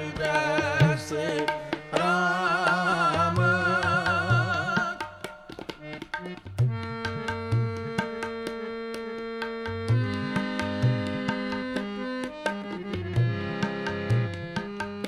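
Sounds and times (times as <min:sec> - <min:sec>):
harmonium chord: 0:00.0 - 0:15.0
tabla strokes: 0:03.2 - 0:15.0.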